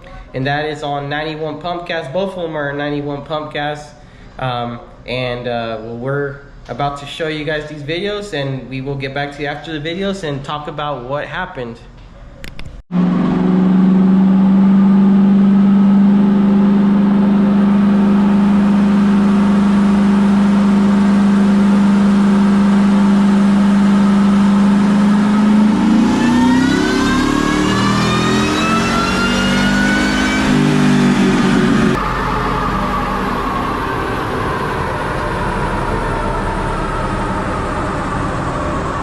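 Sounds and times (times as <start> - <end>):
engine revving on dyno: 12.9 - 39.0
supercharger whine: 12.9 - 39.0.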